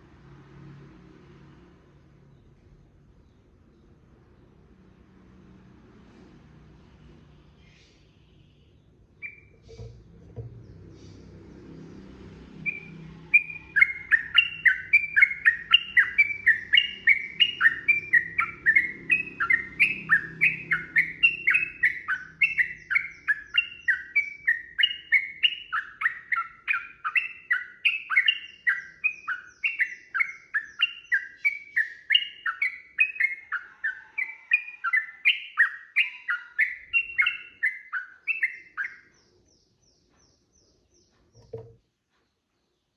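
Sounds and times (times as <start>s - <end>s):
bird chattering song: 7.6s - 11.3s, 12.6s - 42.9s.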